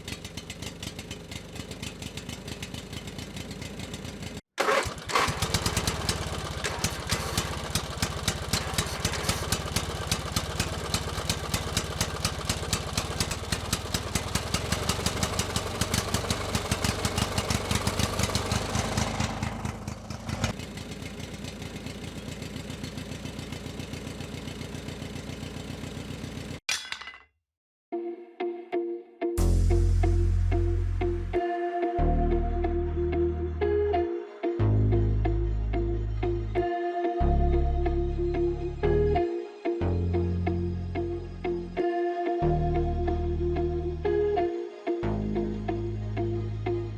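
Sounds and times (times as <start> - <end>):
small engine running: 0.0 - 26.6.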